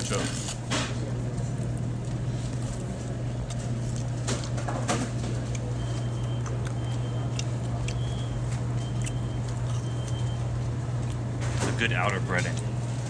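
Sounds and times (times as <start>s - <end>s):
biting crunchy food: 1.5s - 11.3s.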